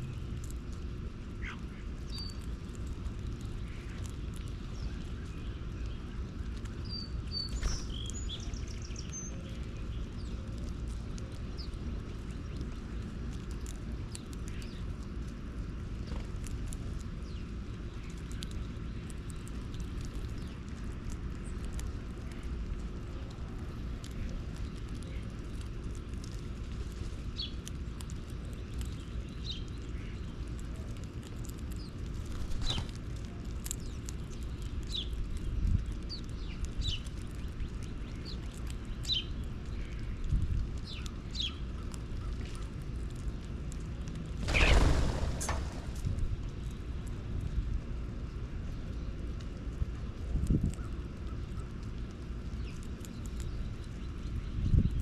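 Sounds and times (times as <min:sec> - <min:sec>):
birds chirping: 0:00.0 - 0:15.0, 0:27.2 - 0:43.5, 0:44.4 - 0:47.6, 0:50.7 - 0:55.0
low outdoor rumble: 0:00.0 - 0:55.0.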